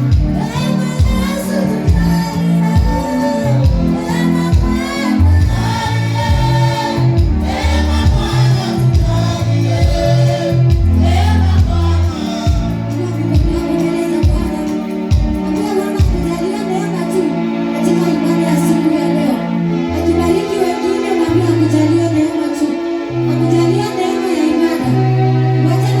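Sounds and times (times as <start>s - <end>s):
voices singing: 0.0s - 19.4s
steady drum beat: 0.1s - 0.4s, 1.0s - 16.4s
band playing: 1.0s - 16.4s.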